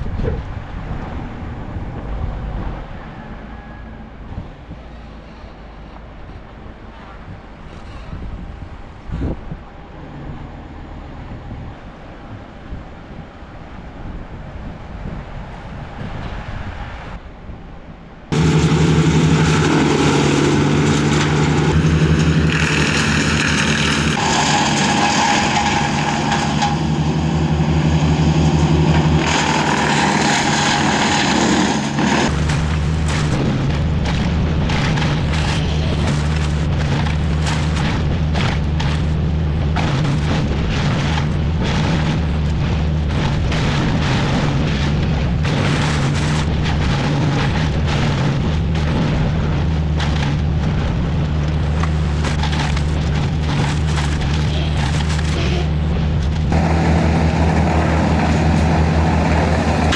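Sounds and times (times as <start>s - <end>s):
rough rapid crackling: 18.3s - 33.2s, 56.5s - 59.9s
loud machine engine running: 18.3s - 33.6s, 56.5s - 59.9s.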